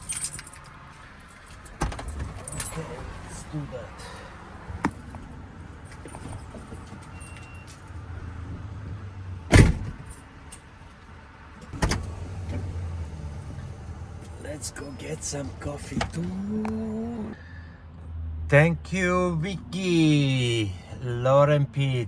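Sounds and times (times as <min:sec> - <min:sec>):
keys jangling: 0:00.0 - 0:03.4, 0:05.8 - 0:07.9, 0:09.6 - 0:10.7
low steady vehicle hum: 0:00.0 - 0:22.0.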